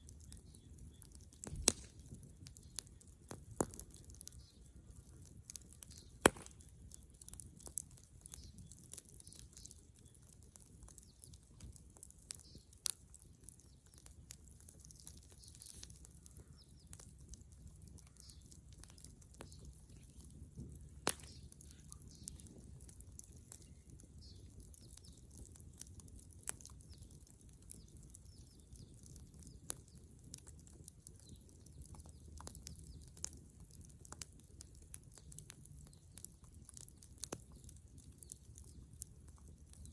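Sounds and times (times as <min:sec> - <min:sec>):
bonfire crackling: 0:00.0 - 0:39.9
low fire rumble: 0:00.0 - 0:39.9
loud fire pops: 0:01.4 - 0:04.5, 0:05.8 - 0:06.9, 0:20.6 - 0:22.6.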